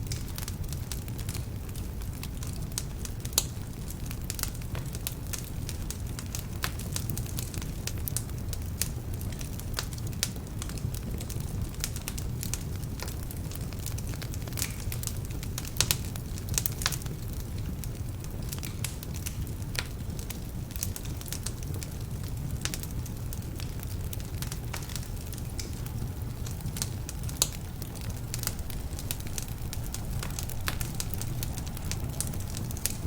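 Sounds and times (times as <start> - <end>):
fire crackling and popping: 0.0 - 33.0
wood fire burning: 0.0 - 33.0.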